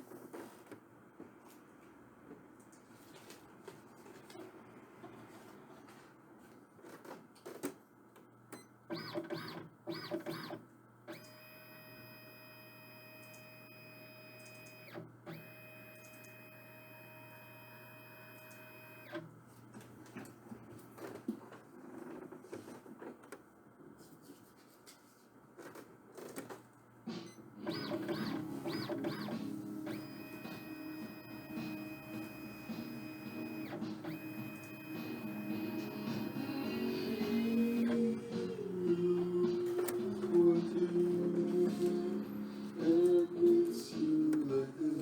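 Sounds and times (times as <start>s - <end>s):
printer motor whirring: 8.9s - 19.3s, 27.6s - 38.1s
printer whining passes: 27.1s - 38.2s
printer clicks: 27.6s - 30.7s.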